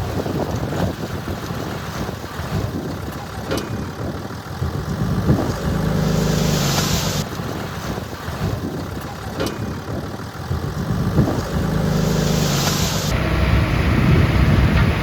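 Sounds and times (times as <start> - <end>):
diesel engines rumbling: 0.0 - 15.0
engine drone with hiss: 4.6 - 7.6, 9.2 - 15.0.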